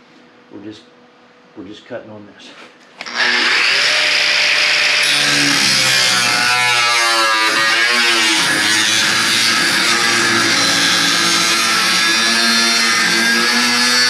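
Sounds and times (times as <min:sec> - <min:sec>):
cut-off wheel cutting sheet metal: 0:03.0 - 0:14.0.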